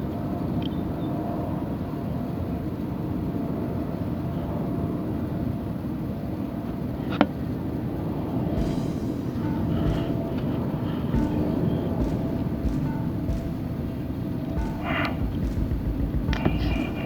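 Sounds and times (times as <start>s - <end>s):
low rumbling noise: 8.6s - 17.0s.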